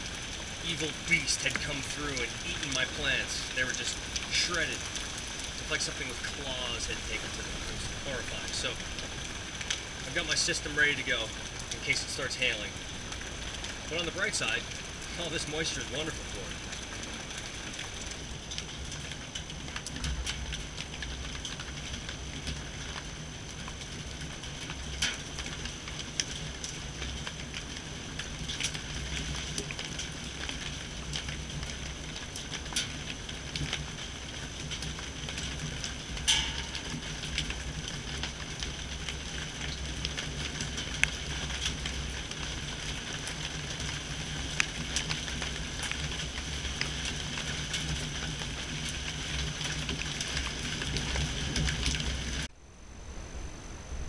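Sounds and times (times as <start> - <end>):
rain falling: 0.0 - 52.6
low steady rumble: 0.0 - 54.0
sharp ticks of drops: 36.2 - 37.2.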